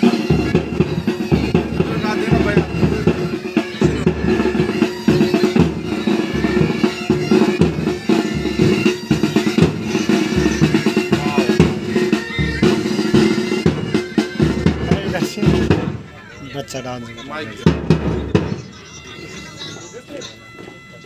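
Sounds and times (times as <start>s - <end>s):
snare drum rolls: 0.0s - 16.0s
bagpipes playing: 0.0s - 21.0s
drums beating: 0.0s - 21.0s.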